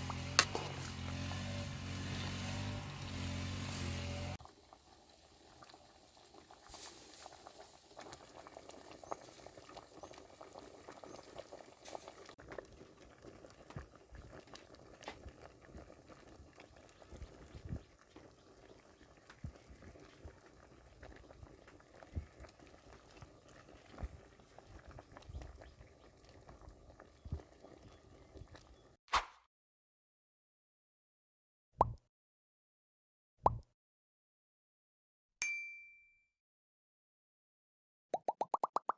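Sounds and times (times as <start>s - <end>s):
curry bubbling in a pot: 4.3s - 29.0s.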